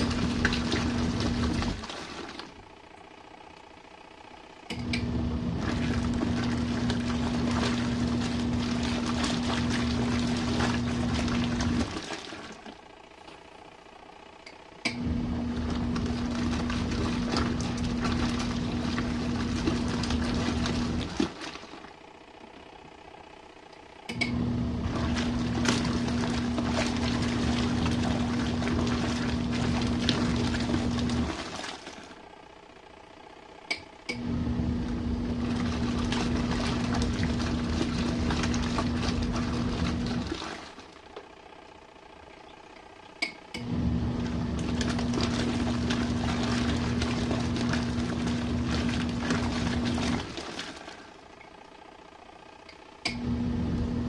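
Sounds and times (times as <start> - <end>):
churning water: 0.0 - 2.8, 4.8 - 13.4, 14.9 - 22.6, 24.1 - 32.4, 34.1 - 41.4, 43.6 - 51.5
washing machine motor humming: 0.0 - 54.0.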